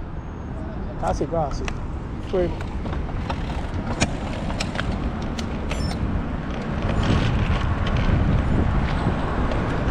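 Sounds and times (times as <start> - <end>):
low rumble of road traffic: 0.0 - 9.9
sharp clicks: 2.6 - 6.0.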